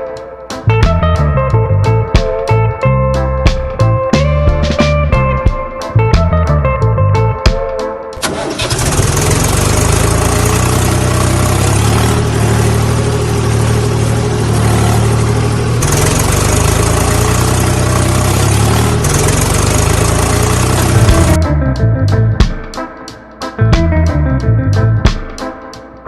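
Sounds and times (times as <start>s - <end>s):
engine idling: 8.2s - 21.4s.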